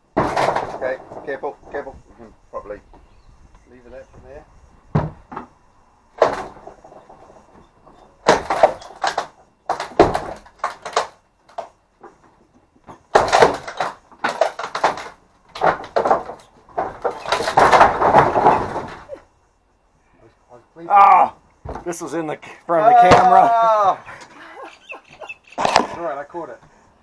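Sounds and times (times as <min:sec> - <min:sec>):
wooden boards knocking and cracking: 0:00.1 - 0:01.9, 0:04.9 - 0:05.5, 0:06.2 - 0:19.2, 0:21.6 - 0:22.0, 0:22.9 - 0:23.5
wood clattering and scraping: 0:00.1 - 0:03.2, 0:06.2 - 0:19.3, 0:24.1 - 0:26.8.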